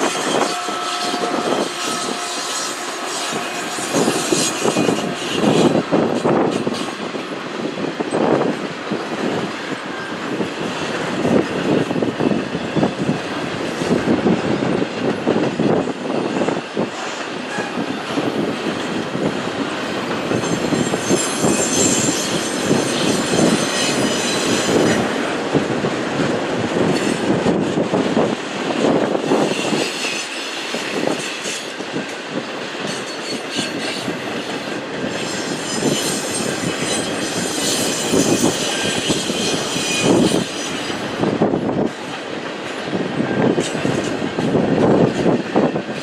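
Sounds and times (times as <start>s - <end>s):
freight train wheels clattering: 0.0s - 46.0s
high wheel squeal: 0.1s - 6.9s, 20.0s - 25.1s, 32.9s - 41.0s.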